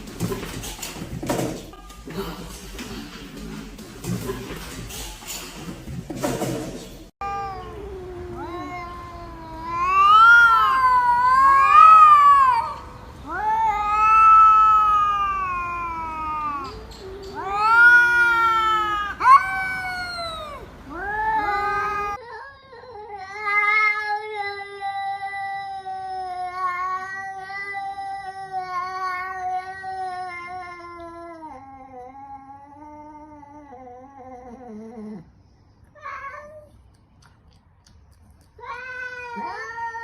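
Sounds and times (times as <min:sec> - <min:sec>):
cat yowling: 0:07.2 - 0:22.2, 0:38.6 - 0:40.0.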